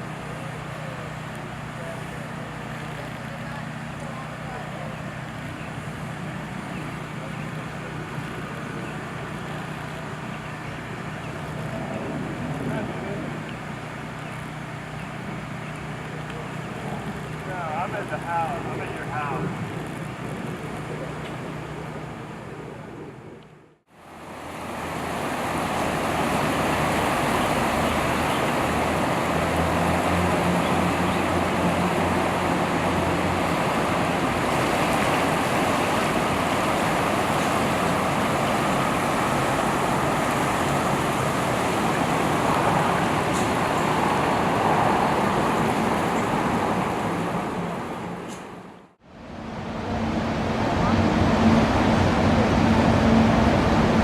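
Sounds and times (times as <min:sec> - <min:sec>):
low engine hum: 0:00.0 - 0:54.0
river rushing: 0:23.9 - 0:54.0.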